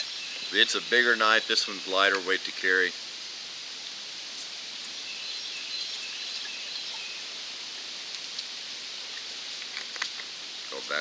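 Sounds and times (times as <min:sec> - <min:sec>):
faint bird chirps: 0:04.3 - 0:07.4.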